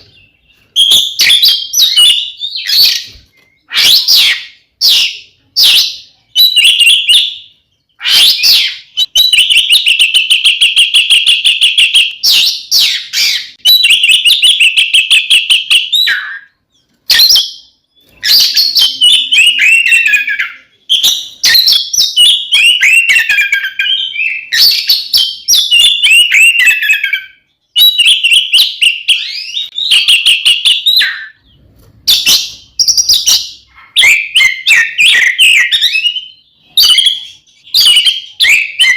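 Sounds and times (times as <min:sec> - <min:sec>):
bird whistled phrases: 0:08.0 - 0:31.5, 0:32.1 - 0:38.9.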